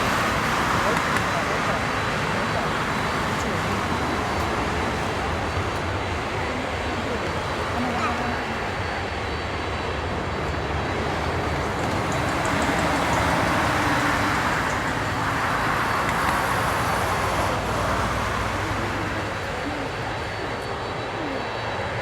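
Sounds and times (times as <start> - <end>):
jet engine rumble: 0.0 - 22.0.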